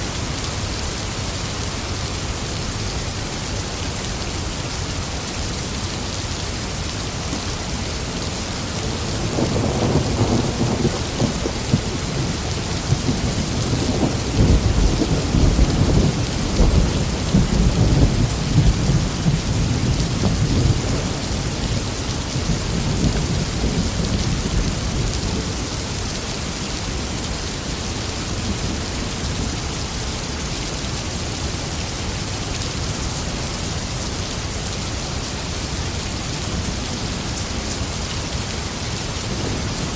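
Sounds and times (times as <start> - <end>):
heavy rain: 0.0 - 39.9
rolling thunder: 9.0 - 25.6.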